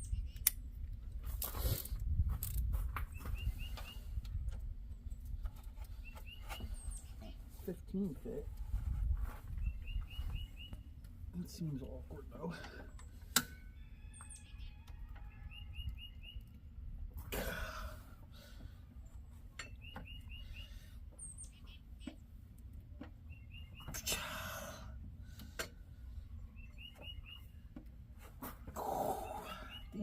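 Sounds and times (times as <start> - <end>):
songbird chirping: 2.9 - 8.5, 9.2 - 16.8, 18.6 - 24.4, 26.0 - 30.0
bird twittering: 9.6 - 10.9, 14.1 - 16.5, 19.6 - 22.2, 23.3 - 24.0, 26.4 - 27.6, 28.9 - 30.0.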